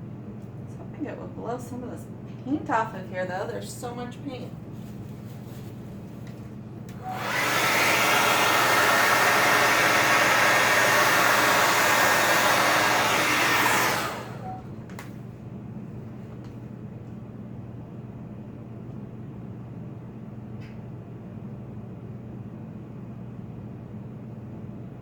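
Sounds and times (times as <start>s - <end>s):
hair dryer blowing: 6.9s - 15.1s.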